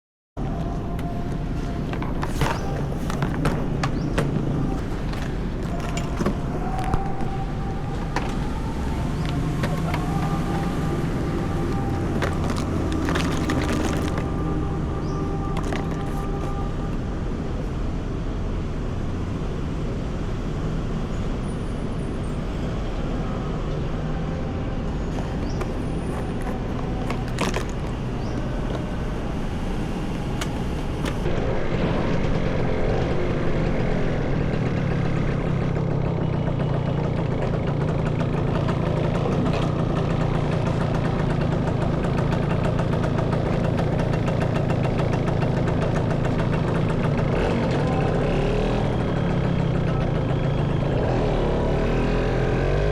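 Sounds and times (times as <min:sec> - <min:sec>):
motorcycle engine running: 0:00.4 - 0:17.7, 0:23.0 - 0:52.9
street traffic: 0:00.4 - 0:52.9.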